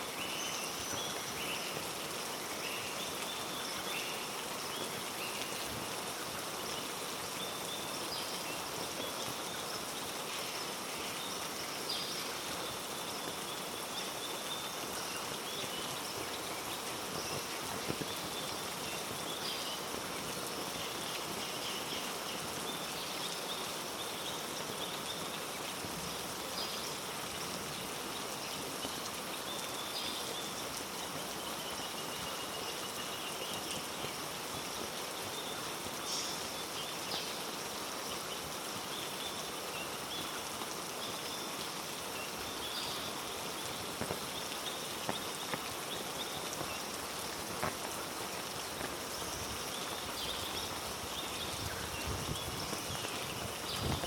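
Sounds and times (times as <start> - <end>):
heavy rain falling: 23.8 - 54.0.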